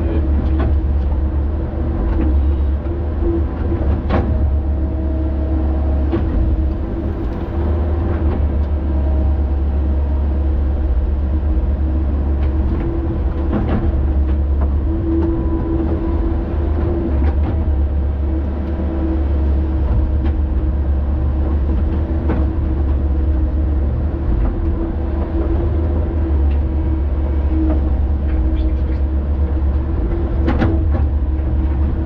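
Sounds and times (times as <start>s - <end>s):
diesel engine rumbling: 0.0s - 32.0s.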